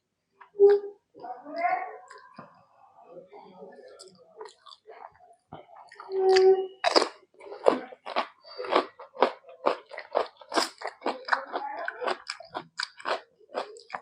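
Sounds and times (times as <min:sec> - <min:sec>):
person chewing crunchy food: 0:05.9 - 0:14.0.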